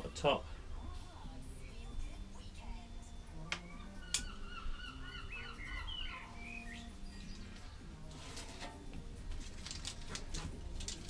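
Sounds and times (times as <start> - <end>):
low background music: 0.0 - 11.0
bird warbling chirps: 3.4 - 7.8
papery rustle: 8.1 - 11.0.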